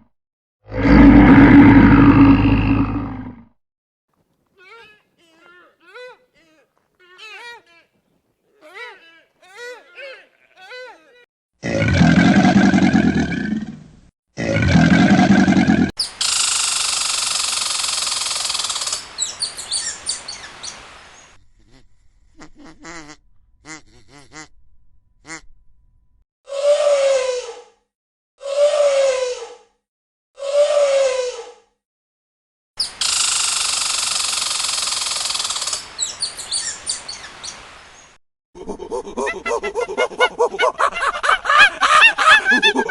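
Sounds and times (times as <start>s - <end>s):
low animal call: 0.7s - 3.5s, 26.5s - 27.7s
birds chirping: 18.4s - 21.4s, 35.5s - 38.2s
loud pitched animal call: 26.5s - 27.6s, 28.4s - 29.5s, 30.4s - 31.5s.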